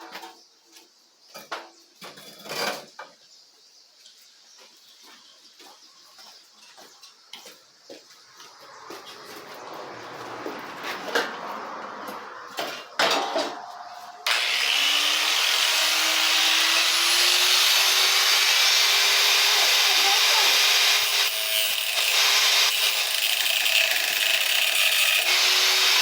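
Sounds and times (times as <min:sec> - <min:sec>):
power tool grinding: 0:14.0 - 0:26.0.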